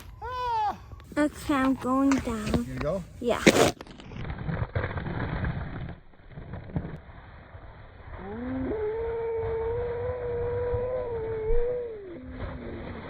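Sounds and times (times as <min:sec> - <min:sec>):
sled scraping over icy snow: 0:01.1 - 0:10.5, 0:12.1 - 0:13.0.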